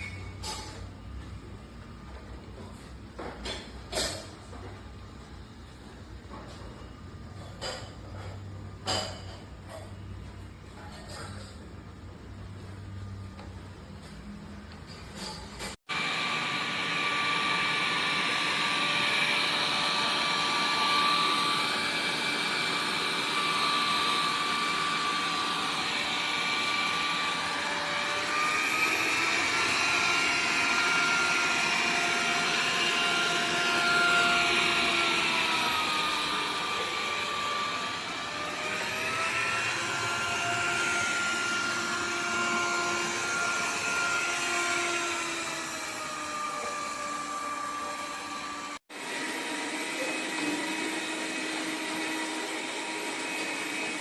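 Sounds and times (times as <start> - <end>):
robot vacuum running: 15.9 - 54.0.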